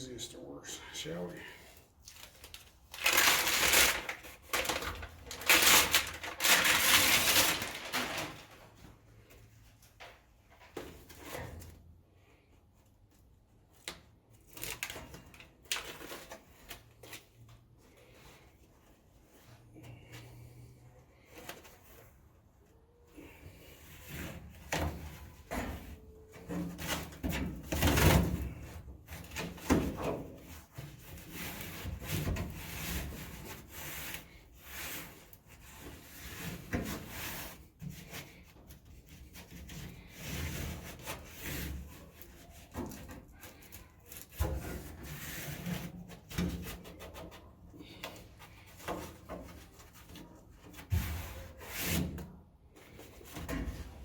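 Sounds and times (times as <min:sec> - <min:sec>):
rubbing and scraping: 0:02.1 - 0:08.8.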